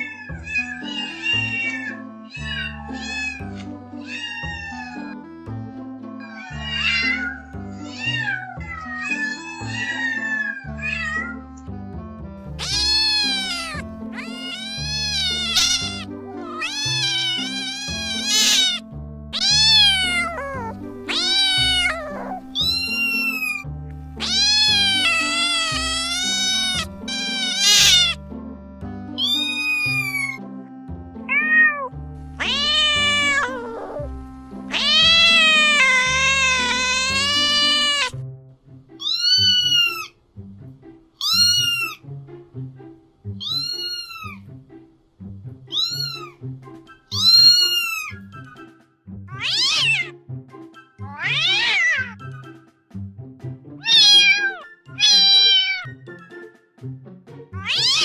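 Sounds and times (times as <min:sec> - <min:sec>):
cats meowing: 0:00.0 - 0:05.2, 0:06.2 - 0:11.4, 0:12.5 - 0:18.8, 0:19.4 - 0:28.2, 0:29.2 - 0:30.4, 0:31.3 - 0:34.1, 0:34.7 - 0:38.2, 0:39.0 - 0:40.2, 0:41.2 - 0:42.0, 0:43.4 - 0:44.4, 0:45.7 - 0:46.4, 0:47.1 - 0:48.2, 0:49.3 - 0:50.1, 0:51.0 - 0:52.2, 0:53.8 - 0:56.0, 0:57.6 - 0:58.0
background music: 0:00.0 - 0:58.0.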